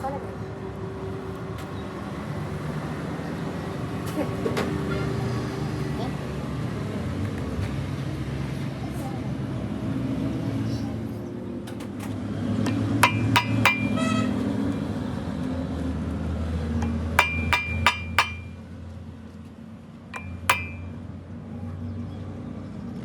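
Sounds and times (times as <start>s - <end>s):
hammer striking steel: 12.7s - 14.3s, 16.8s - 18.6s, 20.2s - 20.9s.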